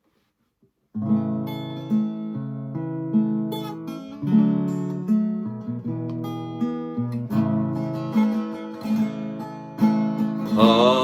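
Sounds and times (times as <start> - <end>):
acoustic guitar strumming chords: 1.0 - 11.0.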